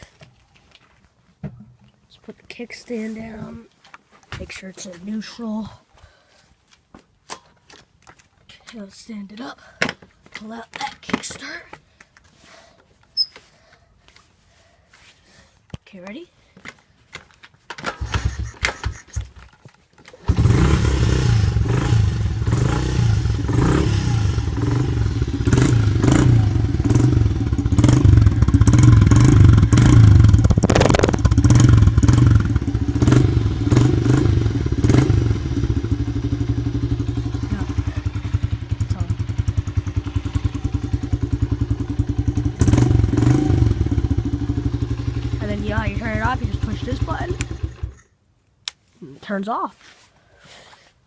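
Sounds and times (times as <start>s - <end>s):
dirt bike engine running: 20.2s - 48.0s.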